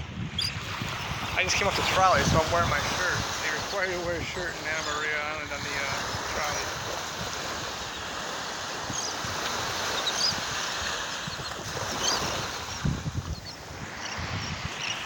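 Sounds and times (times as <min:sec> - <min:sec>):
surf washing on a beach: 0:00.0 - 0:15.0
wind buffeting microphone: 0:00.0 - 0:15.0
faint high bird calls: 0:09.9 - 0:10.4, 0:11.3 - 0:12.3.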